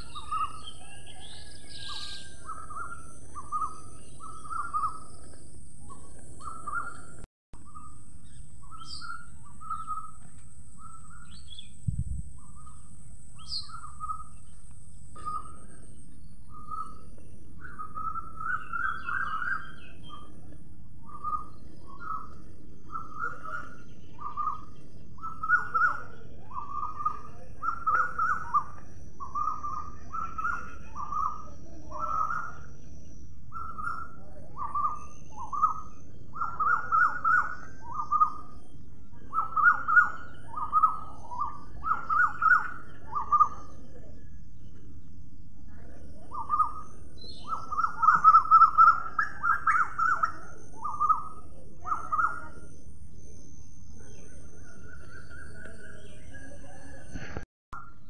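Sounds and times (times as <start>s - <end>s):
bird chirping: 0.0s - 58.0s.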